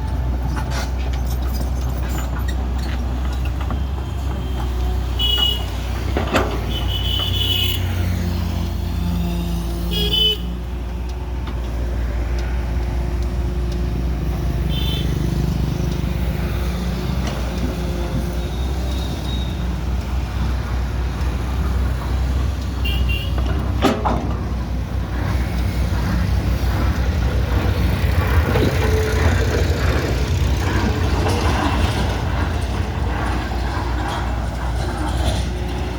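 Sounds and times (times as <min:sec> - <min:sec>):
excavator diesel engine running: 0:10.6 - 0:35.9.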